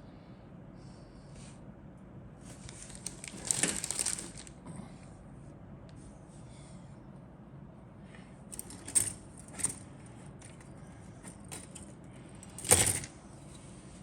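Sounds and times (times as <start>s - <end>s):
plastic parts clicking and rattling: 2.9s - 4.5s.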